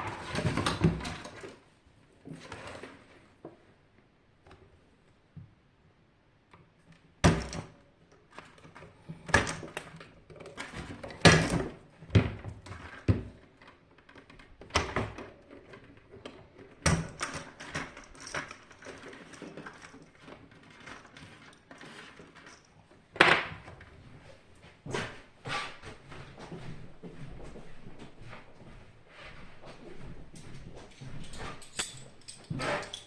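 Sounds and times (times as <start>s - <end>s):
tools and parts clattering: 0.0s - 1.6s, 14.0s - 23.8s, 31.2s - 33.0s.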